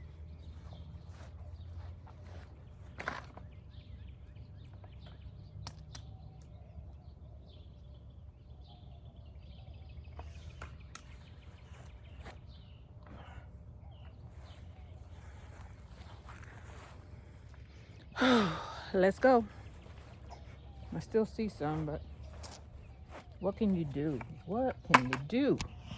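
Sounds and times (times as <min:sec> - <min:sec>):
faint bird chirps: 0:00.0 - 0:24.8
sharp clicks: 0:05.6 - 0:06.6.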